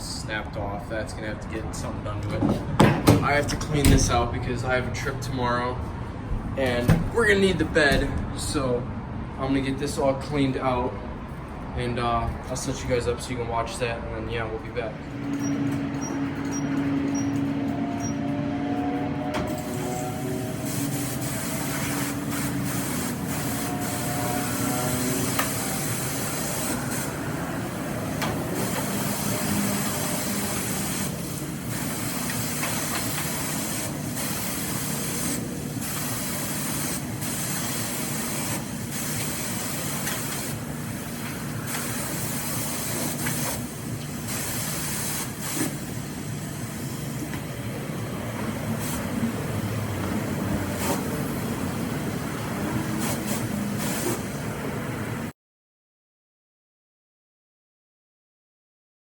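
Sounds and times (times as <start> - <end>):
pressure washer spraying metal: 19.5 - 47.6, 48.2 - 54.6.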